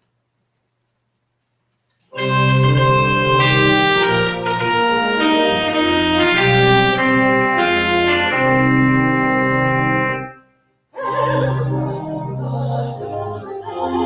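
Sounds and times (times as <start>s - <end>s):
organ playing chords: 2.2s - 10.4s, 11.4s - 14.0s.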